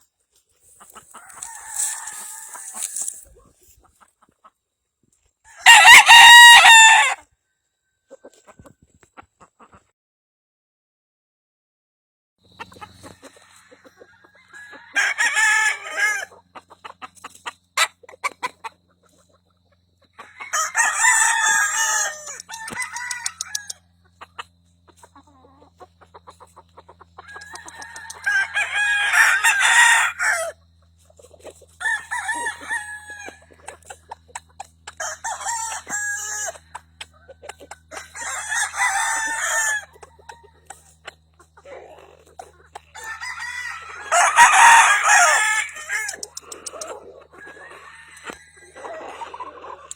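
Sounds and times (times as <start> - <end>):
rooster clucking: 0.6 - 4.6, 5.5 - 7.2, 12.5 - 49.9
roosters crowing: 0.8 - 3.4, 5.5 - 7.3, 12.7 - 16.6, 20.0 - 49.9.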